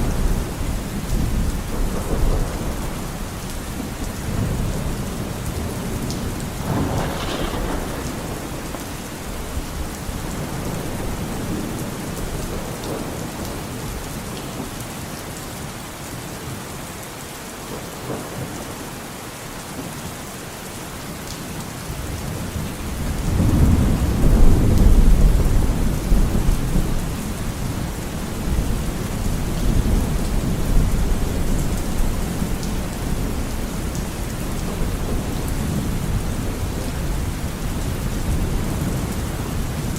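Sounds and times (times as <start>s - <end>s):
rolling thunder: 0.0s - 14.0s, 22.3s - 39.9s
steady rain falling: 0.0s - 39.9s.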